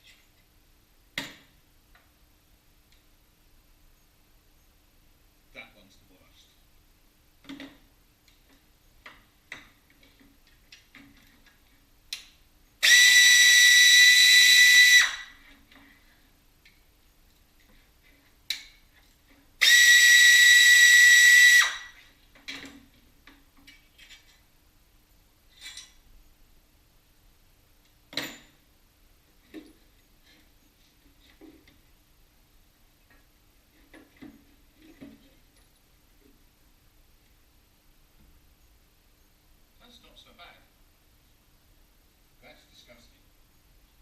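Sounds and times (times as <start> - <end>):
tools clicking and knocking: 7.4 - 12.4, 16.6 - 19.4, 22.3 - 24.5, 25.5 - 26.0
air tool whine and hiss: 12.8 - 15.2, 19.6 - 21.8.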